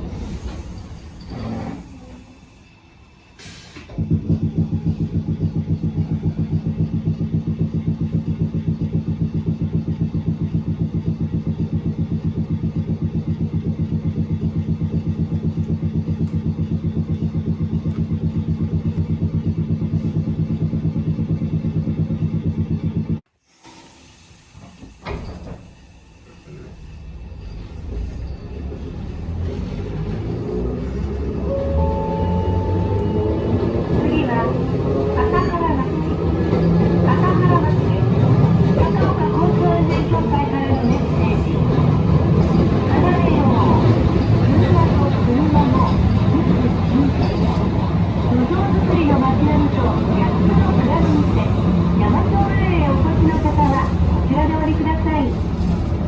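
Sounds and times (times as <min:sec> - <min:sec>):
tram low pulsing: 0:00.0 - 0:23.2, 0:24.6 - 0:56.0.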